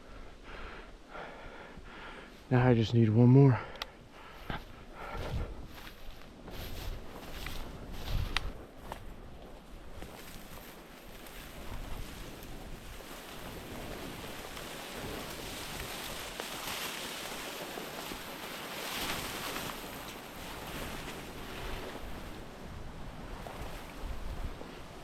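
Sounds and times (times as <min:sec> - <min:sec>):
wind buffeting microphone: 0:04.2 - 0:25.0.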